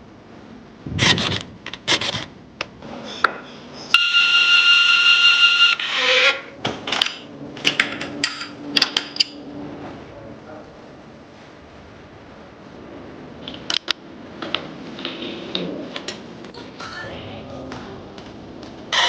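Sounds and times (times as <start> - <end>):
power tool high whine: 3.9 - 6.5.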